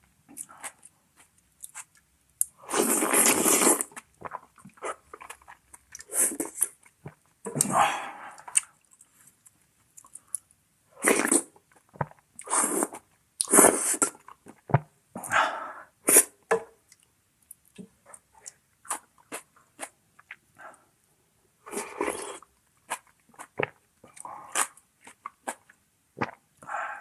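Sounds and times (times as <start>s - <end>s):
person slurping and chewing: 2.6s - 6.9s, 11.0s - 14.8s, 21.7s - 26.4s.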